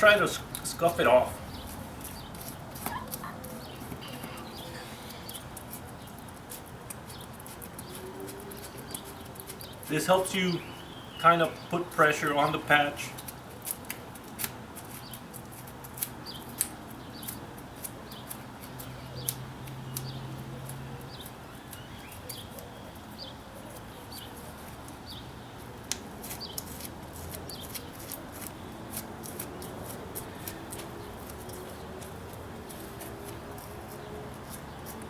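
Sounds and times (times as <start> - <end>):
small bird chirping: 7.1 - 11.8, 18.1 - 25.4.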